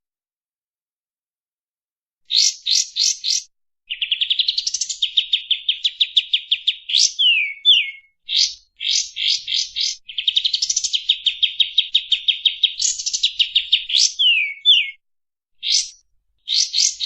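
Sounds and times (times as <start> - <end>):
songbird singing trills: 2.3 - 15.0, 15.6 - 17.0.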